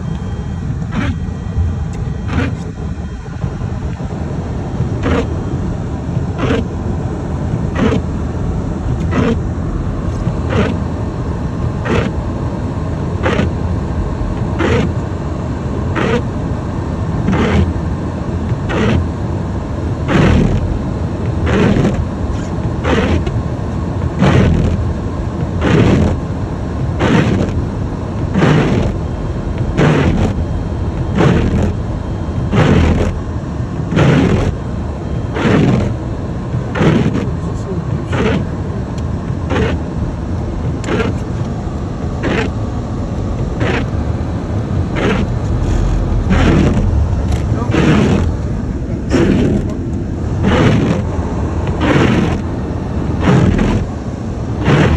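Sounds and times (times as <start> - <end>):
car engine and tyres rumbling: 0.0 - 54.9
windshield wipers swishing: 0.8 - 4.1, 4.8 - 5.4, 6.1 - 6.8, 7.5 - 8.2, 8.9 - 10.9, 11.8 - 12.2, 13.2 - 13.6, 14.3 - 15.0, 17.3 - 17.7, 18.5 - 19.1, 20.1 - 23.4, 24.0 - 24.8, 25.4 - 26.3, 26.9 - 33.2, 33.8 - 34.6, 35.3 - 54.9.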